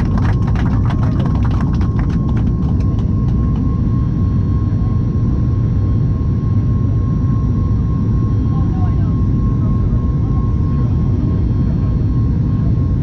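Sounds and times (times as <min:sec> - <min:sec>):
jet engines rumbling in cabin: 0:00.0 - 0:13.0
thin steady engine whine: 0:00.0 - 0:13.0.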